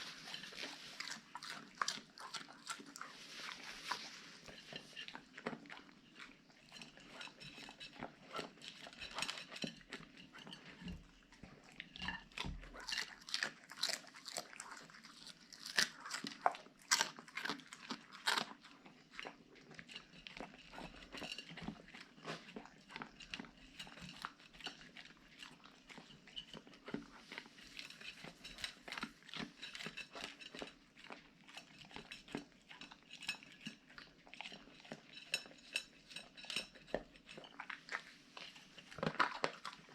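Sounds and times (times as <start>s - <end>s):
dog crunching and chewing food: 0.0s - 39.9s.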